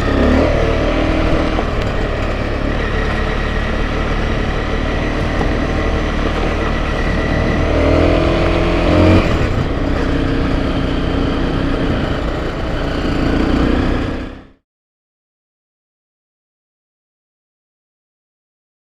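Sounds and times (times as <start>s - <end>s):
off-road motorcycle engine running: 0.0s - 14.6s.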